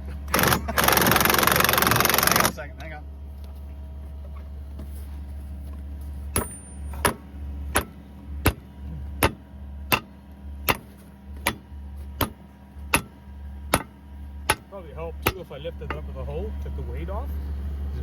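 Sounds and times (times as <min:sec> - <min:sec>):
engine humming: 0:00.0 - 0:18.0
hammer striking metal bolt: 0:06.4 - 0:08.6.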